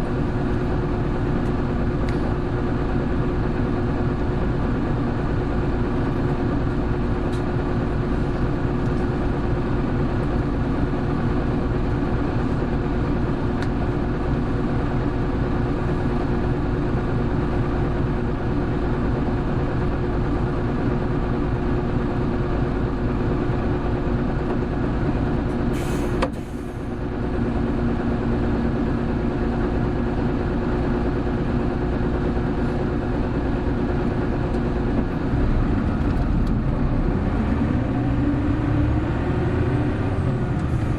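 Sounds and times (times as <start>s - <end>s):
bus engine running: 0.0s - 40.9s
short hiss: 25.8s - 26.8s.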